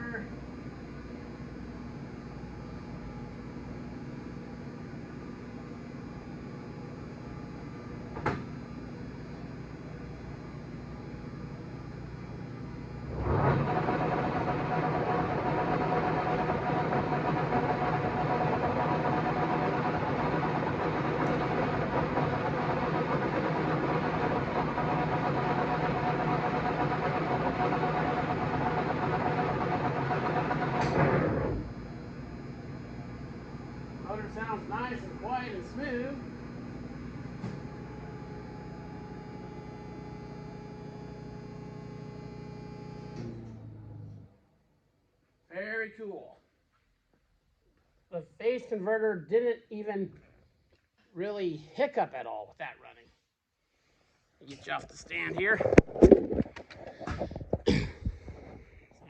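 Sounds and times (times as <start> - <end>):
lathe gear and motor whine: 11.5 - 43.8
tripod vibration: 13.0 - 38.2, 54.7 - 58.6.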